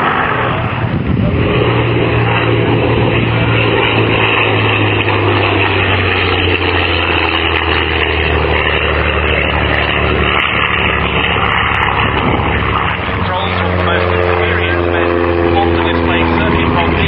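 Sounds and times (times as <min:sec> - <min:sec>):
propeller plane engine in flight: 0:00.0 - 0:17.0.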